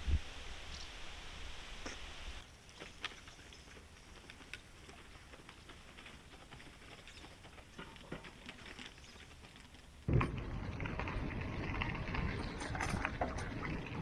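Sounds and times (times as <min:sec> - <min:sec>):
wind noise on microphone: 0:00.0 - 0:02.4.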